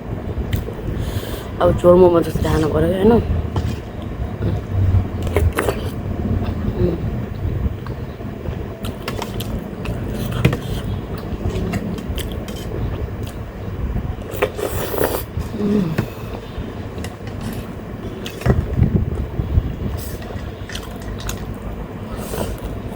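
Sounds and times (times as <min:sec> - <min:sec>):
electric fan hum: 0:00.0 - 0:22.9
chewing: 0:08.8 - 0:13.4, 0:20.1 - 0:21.6
slurping: 0:08.8 - 0:13.4, 0:14.3 - 0:18.5.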